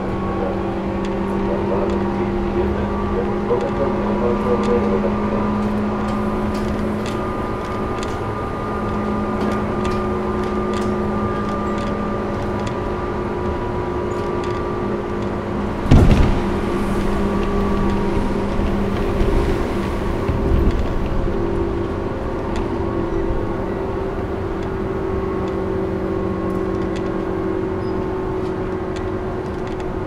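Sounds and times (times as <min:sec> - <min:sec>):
passing train whoosh: 0:00.0 - 0:26.6
train motor and gear hum: 0:00.0 - 0:30.0
wheel clicks over rail joints: 0:05.5 - 0:12.8.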